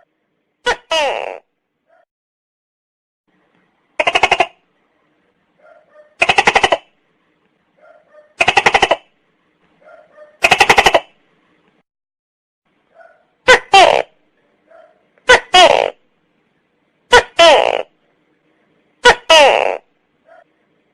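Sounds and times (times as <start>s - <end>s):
gecko calling: 4.0s - 4.6s, 5.8s - 6.9s, 8.2s - 9.1s.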